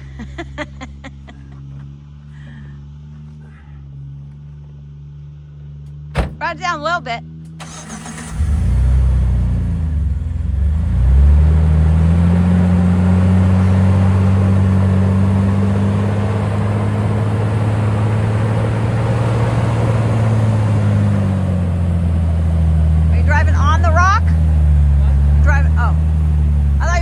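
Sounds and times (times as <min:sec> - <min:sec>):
engine revving under load: 0:05.8 - 0:27.0.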